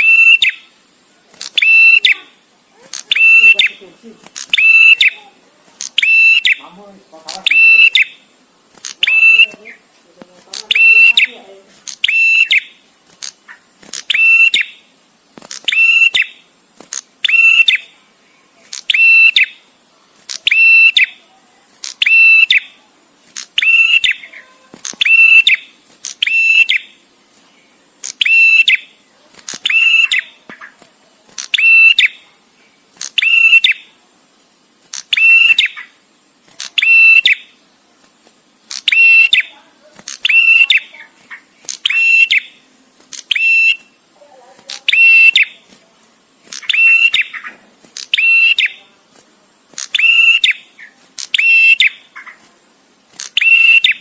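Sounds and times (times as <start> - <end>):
bird whistling call: 0.0 - 0.7, 1.5 - 2.3, 3.0 - 3.8, 4.5 - 5.2, 6.0 - 6.7, 7.4 - 8.2, 9.0 - 9.8, 10.7 - 11.4, 12.0 - 12.8, 14.1 - 14.8, 15.6 - 16.4, 17.2 - 17.9, 18.9 - 19.6, 20.4 - 21.2, 22.0 - 22.7, 23.6 - 24.4, 25.0 - 26.9, 28.2 - 28.9, 29.6 - 30.4, 31.5 - 32.2, 33.2 - 33.9, 35.1 - 35.9, 36.8 - 37.5, 38.8 - 39.5, 40.2 - 40.9, 41.8 - 42.6, 43.3 - 44.0, 44.8 - 45.6, 46.6 - 48.8, 49.9 - 52.3, 53.3 - 54.0.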